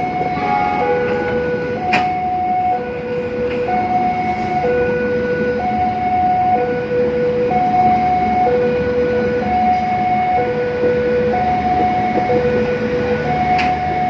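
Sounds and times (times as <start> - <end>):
level crossing two-tone alarm: 0.0 - 14.0
passing train rumble: 0.0 - 14.0.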